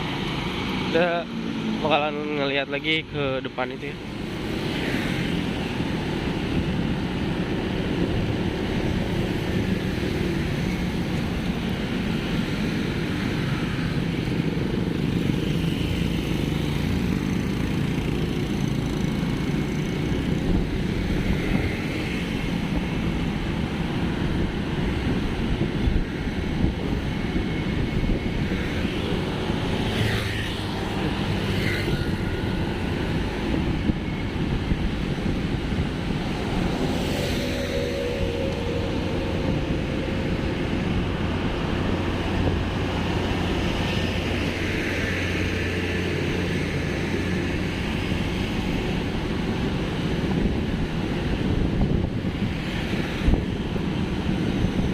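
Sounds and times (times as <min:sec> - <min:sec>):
vehicle and road rumble: 0:00.0 - 0:54.9
wind on microphone: 0:19.8 - 0:30.0, 0:30.6 - 0:54.9.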